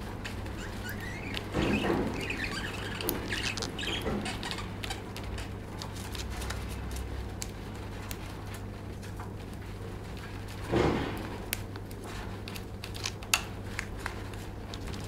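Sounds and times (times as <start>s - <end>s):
lovebird chirping and chattering: 0.6s - 5.0s.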